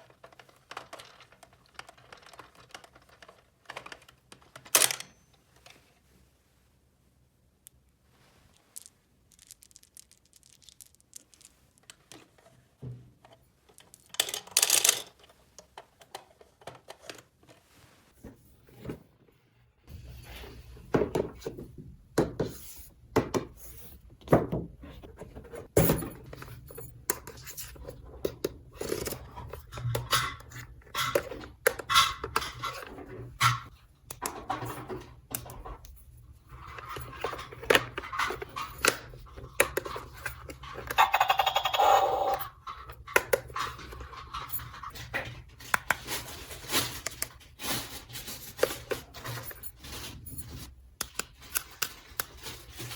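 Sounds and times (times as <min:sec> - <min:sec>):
plastic toy parts clicking: 0:00.0 - 0:05.1, 0:13.7 - 0:17.2, 0:37.6 - 0:44.5.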